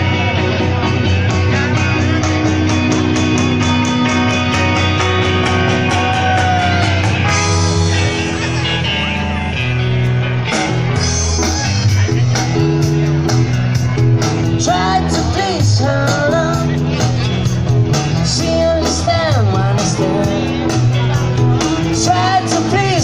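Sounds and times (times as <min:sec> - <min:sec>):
bass notes: 0:00.0 - 0:23.0
guitar: 0:00.0 - 0:23.0
person singing: 0:14.4 - 0:17.2, 0:18.1 - 0:23.0.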